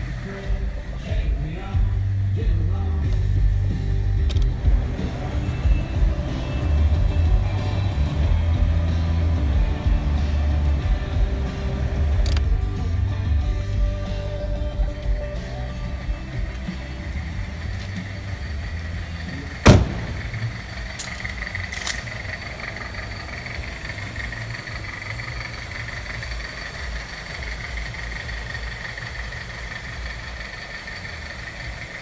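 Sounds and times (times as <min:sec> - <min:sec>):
car engine idling: 0:00.0 - 0:32.0
car door slamming: 0:19.6 - 0:20.6.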